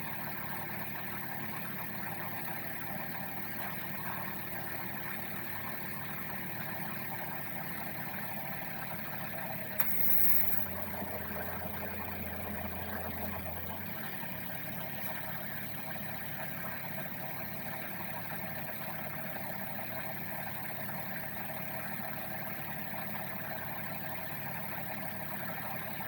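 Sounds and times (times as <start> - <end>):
car engine idling: 0.0 - 26.0
sharp click with hiss: 9.8 - 10.6.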